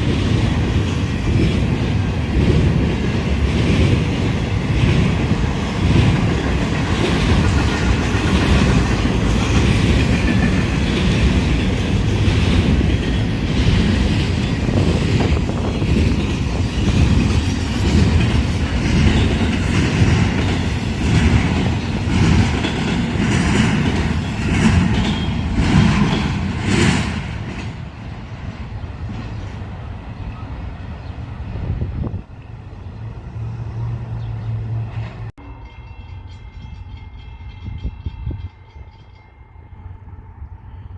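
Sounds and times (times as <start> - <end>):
train wheels clacking on rails: 0.0 - 30.5.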